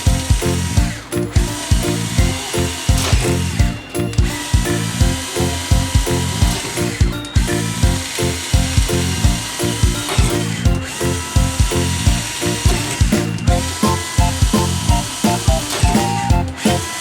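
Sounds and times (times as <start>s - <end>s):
background music with beat: 0.0s - 17.0s
power tool hiss: 13.7s - 17.0s.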